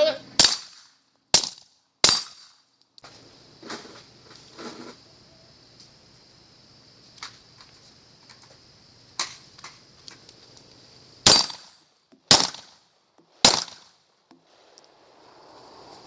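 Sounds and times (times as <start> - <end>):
gunshots: 0.4 - 2.5, 11.2 - 12.8, 13.4 - 13.9.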